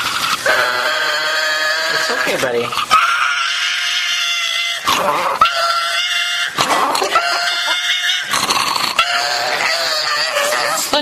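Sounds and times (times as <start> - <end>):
dog crying with high wails: 2.9 - 8.3, 9.0 - 11.0.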